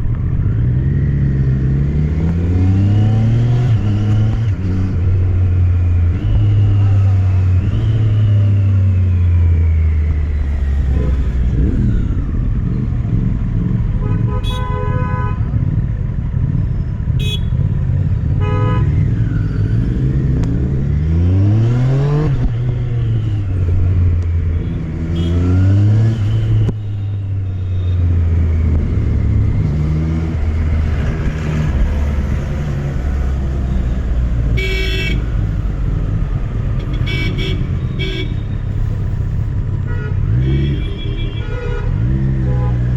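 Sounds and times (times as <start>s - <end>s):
horn toots: 14.0s - 15.4s, 24.6s - 27.0s, 34.5s - 35.3s.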